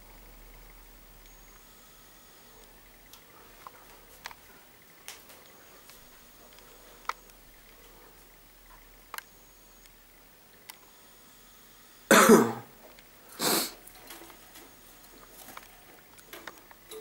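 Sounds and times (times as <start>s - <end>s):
person coughing: 12.1s - 12.7s.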